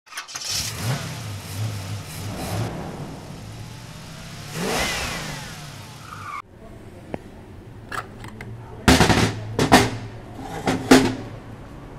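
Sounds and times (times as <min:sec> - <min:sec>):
car engine revving: 0:00.3 - 0:06.4
falling engine whine: 0:00.4 - 0:06.4.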